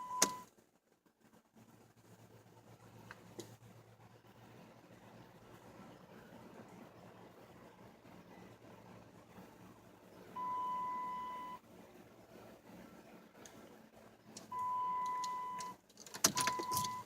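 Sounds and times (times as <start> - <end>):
car warning beep: 0.0 - 0.5, 10.4 - 11.6, 14.5 - 17.0.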